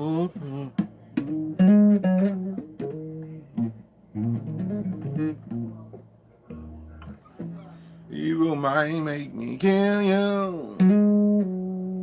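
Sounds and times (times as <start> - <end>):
person singing: 0.0 - 0.9, 8.1 - 11.0
bass guitar plucked notes: 0.0 - 9.1, 9.7 - 12.0.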